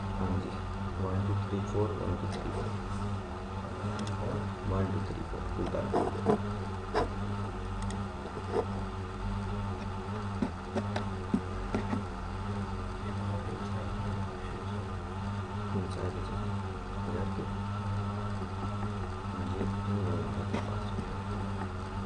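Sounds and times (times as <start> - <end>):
low electrical hum: 0.0 - 22.0
soft clicks: 7.8 - 8.0.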